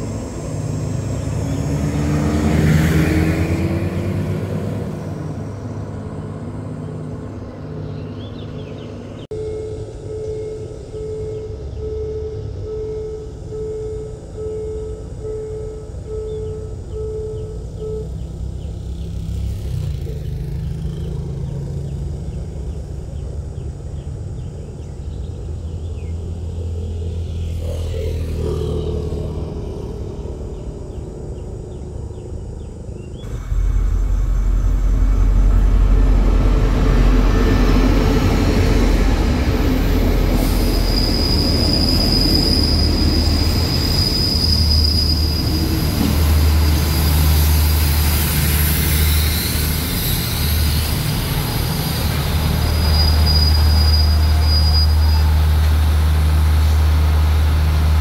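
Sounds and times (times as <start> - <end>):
train rumbling: 0.0 - 58.0
high-pitched brake squeal: 39.8 - 56.8.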